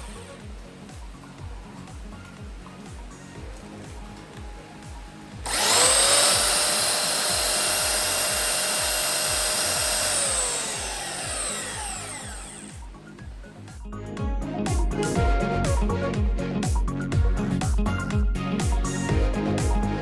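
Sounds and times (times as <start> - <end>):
music with steady beat: 0.0 - 20.0
belt sander motor whine: 5.4 - 13.1.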